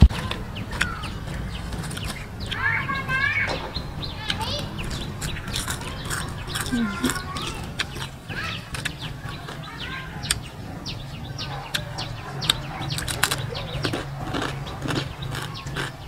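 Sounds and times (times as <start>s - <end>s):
crab shells crunching: 4.8s - 8.2s, 12.5s - 16.0s.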